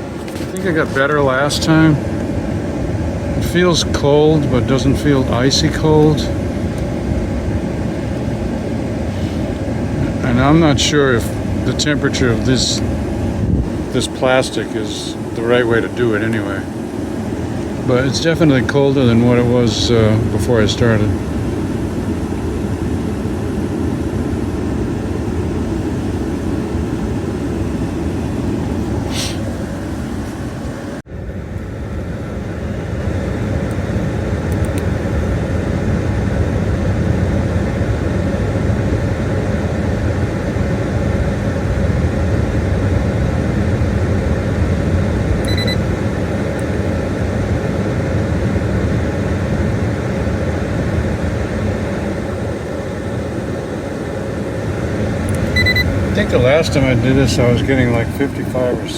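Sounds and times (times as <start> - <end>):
air conditioning blower fan: 0.0 - 58.9
truck engine idling: 52.6 - 58.9.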